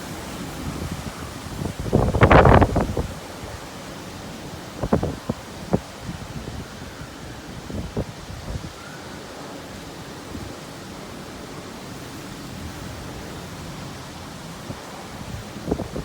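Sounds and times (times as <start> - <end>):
strong wind rushing: 0.0 - 3.6, 4.8 - 8.8, 14.6 - 16.0.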